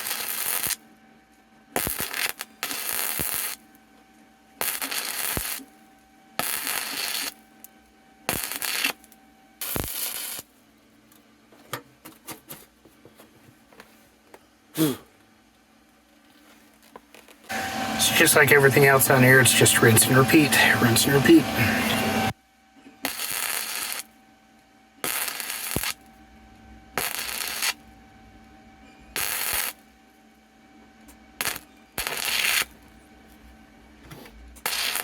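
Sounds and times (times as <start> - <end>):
welder arc bursts: 8.3 - 9.0, 9.6 - 10.4, 17.5 - 22.3, 25.1 - 26.0, 27.0 - 27.8.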